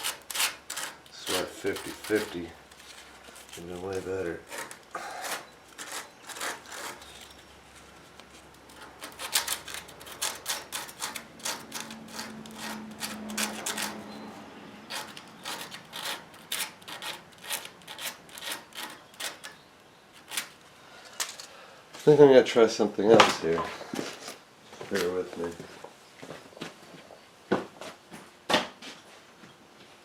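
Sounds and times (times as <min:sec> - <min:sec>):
scraping on metal radiator: 0:00.0 - 0:07.2, 0:08.7 - 0:14.2, 0:14.9 - 0:19.6.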